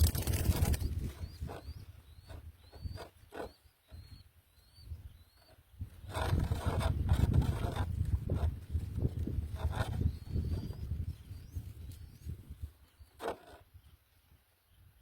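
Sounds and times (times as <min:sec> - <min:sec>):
high bird peeps: 0:00.0 - 0:06.2
rumbling and rustling on microphone: 0:00.0 - 0:14.1.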